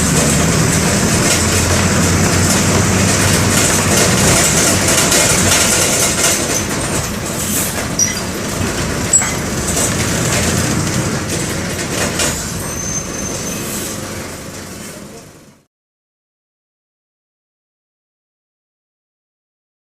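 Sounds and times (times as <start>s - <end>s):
diesel bus engine running: 0.0s - 15.7s
road noise: 0.0s - 15.7s
brief high squeaks: 8.0s - 8.3s, 12.4s - 14.0s.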